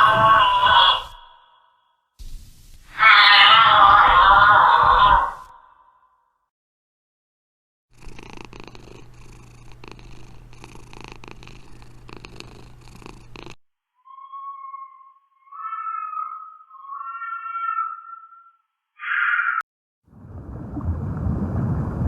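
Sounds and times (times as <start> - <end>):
cat purring: 8.0 - 13.6
short high-pitched calls: 14.0 - 19.6.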